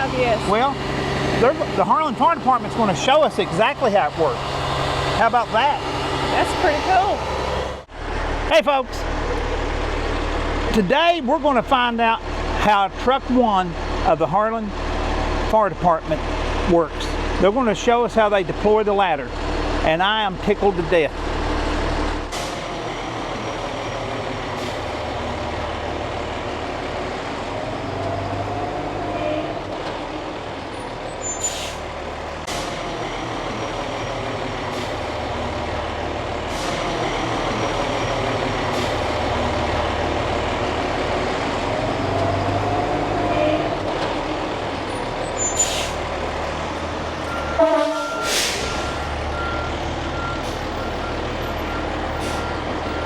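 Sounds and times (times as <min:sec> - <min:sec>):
truck engine running: 0:00.0 - 0:53.0
warning beeper beeping: 0:47.3 - 0:53.0
air hissing: 0:48.2 - 0:48.8.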